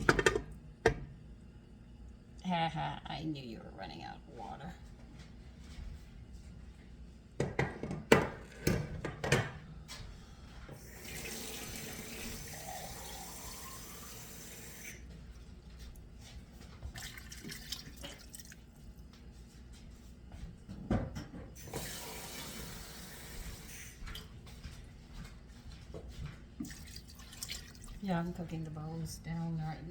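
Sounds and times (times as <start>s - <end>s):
kitchen tap running: 10.7s - 15.0s, 16.8s - 18.6s, 21.6s - 24.3s, 26.6s - 28.7s.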